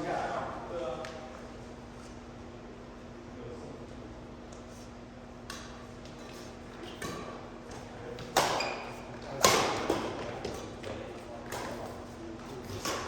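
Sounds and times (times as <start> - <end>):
rackets hitting shuttlecock: 8.2 - 11.8.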